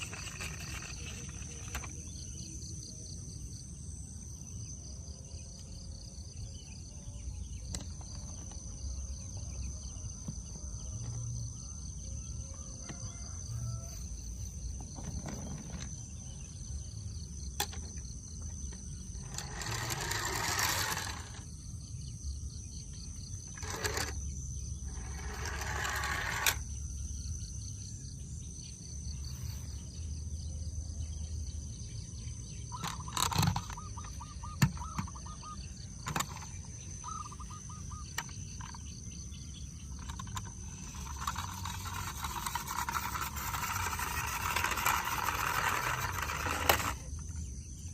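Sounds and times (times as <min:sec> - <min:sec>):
insect chirring: 0:00.0 - 0:30.4, 0:31.9 - 0:47.9.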